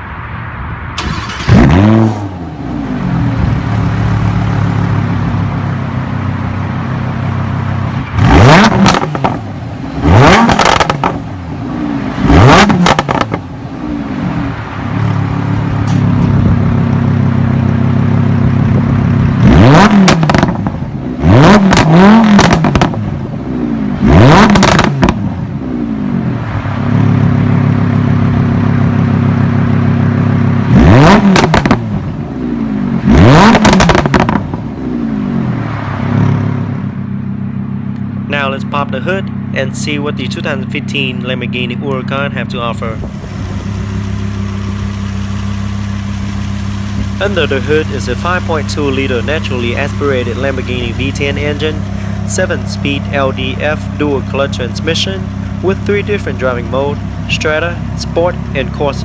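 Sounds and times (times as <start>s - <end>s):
car engine revving: 0.9s - 59.0s.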